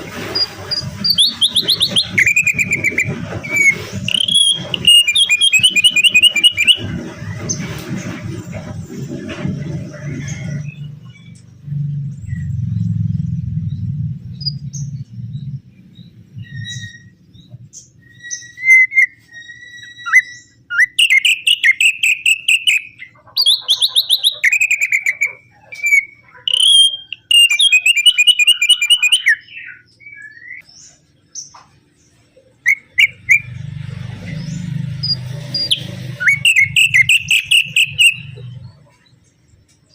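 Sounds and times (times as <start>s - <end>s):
low hum: 0.0s - 18.1s
songbird trilling and whistling: 0.4s - 7.6s, 13.7s - 31.6s, 32.6s - 33.6s, 34.3s - 39.1s.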